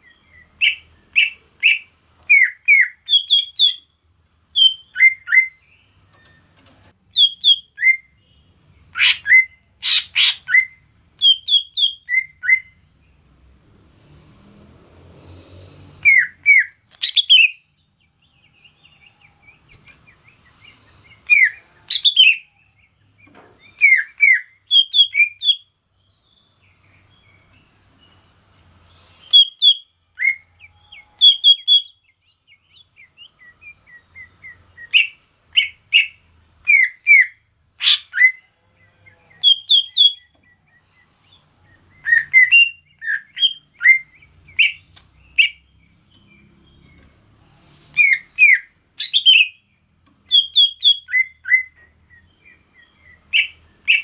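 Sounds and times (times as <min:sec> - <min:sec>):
bird singing whistled notes: 0:00.0 - 0:03.9, 0:04.5 - 0:06.5, 0:07.1 - 0:12.8, 0:16.0 - 0:28.2, 0:28.9 - 0:47.1, 0:47.9 - 0:54.0
steady high-pitched hiss: 0:16.8 - 0:54.0.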